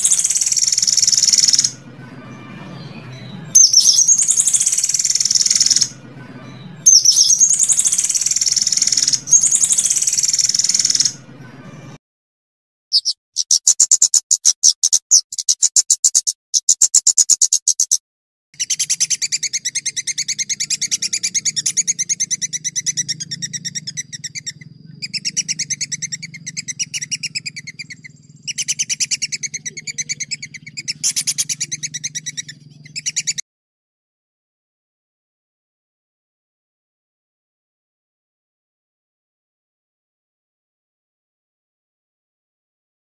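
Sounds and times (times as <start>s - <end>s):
bird rolling trill: 0.0s - 1.8s, 3.5s - 6.0s, 6.8s - 11.2s, 18.6s - 33.4s
bird chirping: 0.0s - 12.0s, 12.9s - 18.0s, 18.6s - 33.4s.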